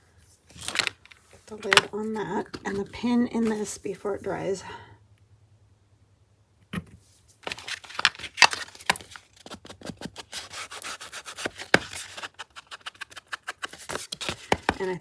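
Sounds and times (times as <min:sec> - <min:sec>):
paper and card rubbing: 0:01.4 - 0:04.4, 0:09.4 - 0:15.0.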